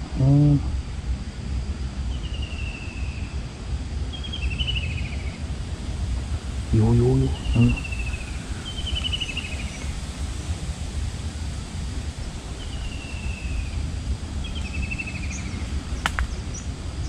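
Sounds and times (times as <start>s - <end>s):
wind rumble on microphone: 0.0s - 17.0s
bird trilling: 6.8s - 9.9s, 12.6s - 16.7s.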